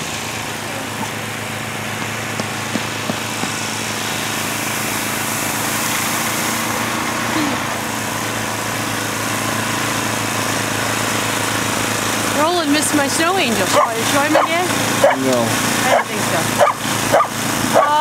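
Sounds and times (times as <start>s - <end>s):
snowblower engine running: 0.0s - 18.0s.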